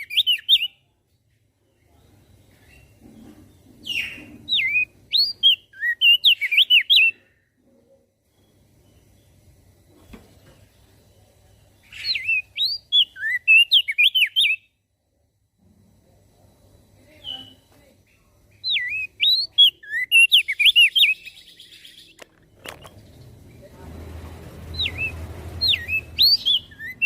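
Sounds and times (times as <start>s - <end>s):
bird singing whistled notes: 0.0s - 0.9s, 3.8s - 7.2s, 11.8s - 14.8s, 17.1s - 17.7s, 18.5s - 23.3s, 24.7s - 27.0s.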